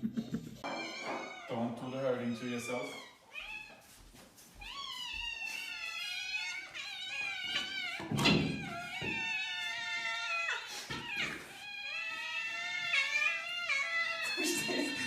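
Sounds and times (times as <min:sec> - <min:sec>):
cat yowling: 0:04.6 - 0:15.0.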